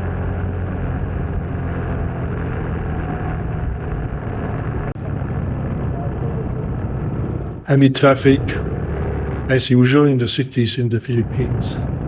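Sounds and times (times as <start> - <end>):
motorcycle engine running: 0.0 - 7.7, 8.3 - 9.5
wind and road noise: 0.0 - 12.0.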